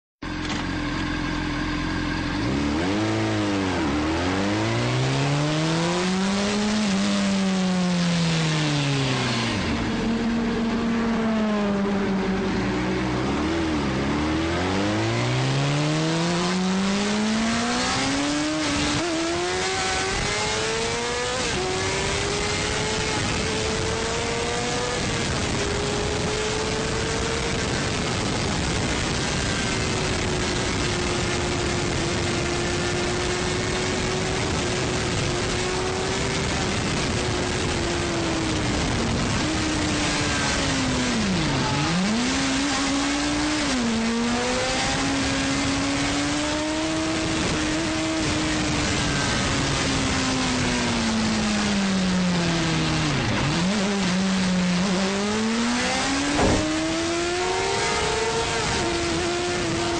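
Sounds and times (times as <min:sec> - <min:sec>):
motorcycle engine accelerating: 0:00.2 - 0:59.9
wind rushing: 0:55.7 - 0:59.9.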